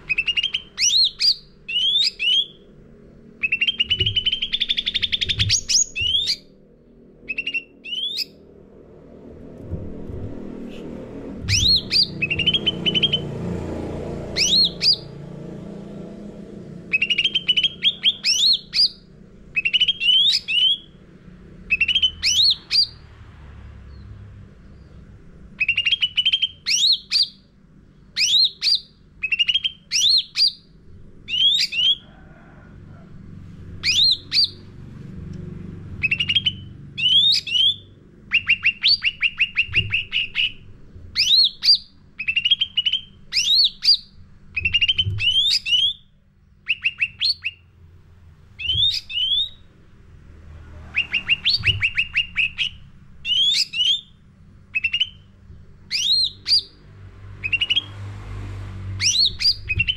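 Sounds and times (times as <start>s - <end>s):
faint low hum: 0.0s - 59.9s
songbird singing whistled phrases: 0.1s - 2.6s, 3.4s - 6.5s, 7.3s - 8.4s, 11.5s - 13.2s, 14.4s - 15.1s, 16.9s - 19.0s, 19.6s - 20.9s, 21.7s - 23.0s, 25.6s - 27.4s, 28.2s - 30.7s, 31.3s - 32.0s, 33.8s - 34.6s, 36.0s - 40.6s, 41.2s - 47.6s, 48.6s - 49.7s, 50.9s - 55.3s, 55.9s - 56.8s, 57.4s - 57.9s, 59.0s - 59.9s.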